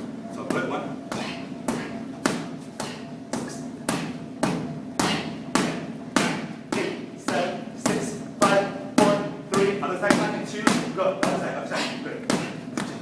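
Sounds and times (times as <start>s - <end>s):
gloved punches on striking pads: 0.5s - 11.5s, 12.2s - 13.0s.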